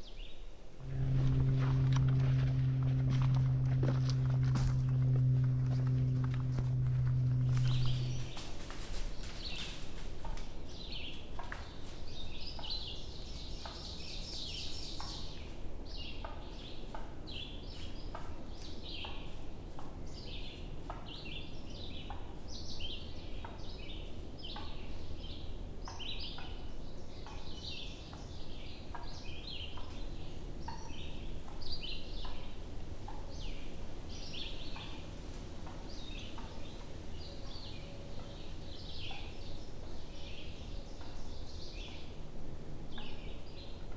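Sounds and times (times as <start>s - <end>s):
low wind rumble: 0.0s - 17.4s
songbirds chirping: 0.0s - 43.9s.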